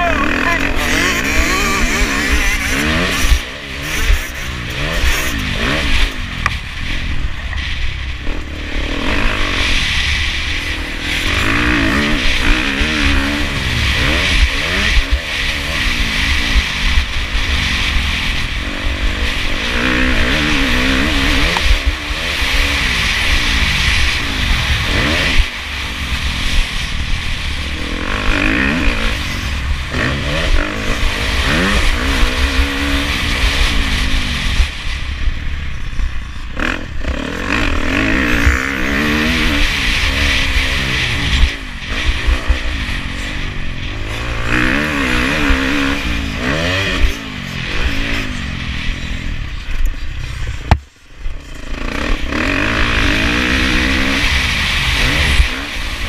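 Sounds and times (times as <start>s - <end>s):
motorcycle engine revving: 0.0s - 56.0s
wind noise on microphone: 0.0s - 56.0s.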